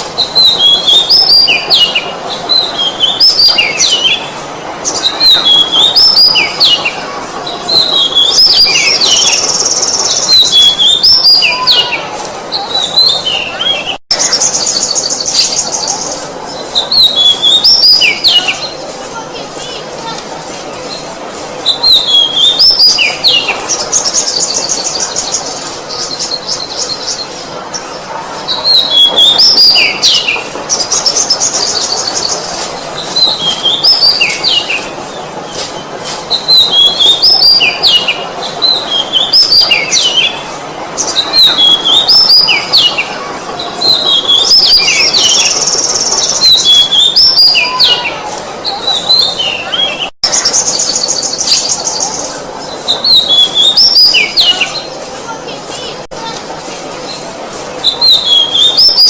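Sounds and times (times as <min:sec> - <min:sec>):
bird singing whistled notes: 0:00.2 - 0:04.3, 0:04.9 - 0:06.9, 0:12.7 - 0:18.8, 0:57.8 - 0:59.0.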